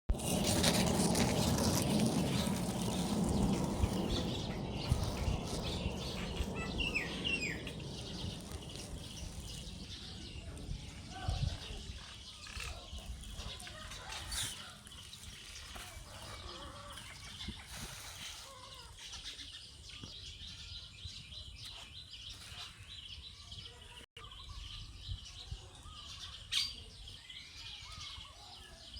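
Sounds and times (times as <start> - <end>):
low rumble: 0.1 - 12.0
birds chirping: 0.1 - 28.9.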